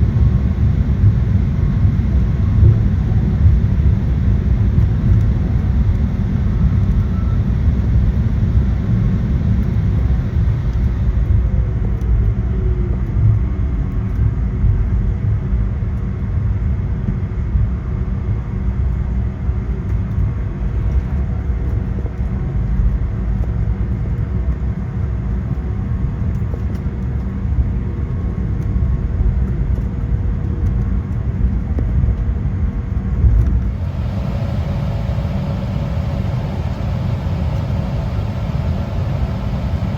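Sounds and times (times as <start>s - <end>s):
faint descending whine: 0.0s - 11.2s, 33.6s - 39.9s
jet engines rumbling: 0.0s - 11.2s, 33.6s - 39.9s
wheels rolling on taxiway: 0.0s - 11.2s, 33.5s - 39.9s.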